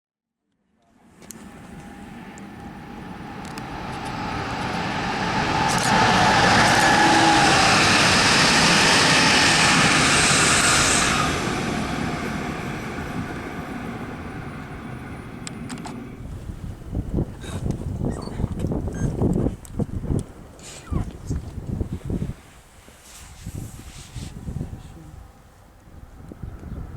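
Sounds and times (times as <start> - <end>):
train passing: 1.0 - 18.0.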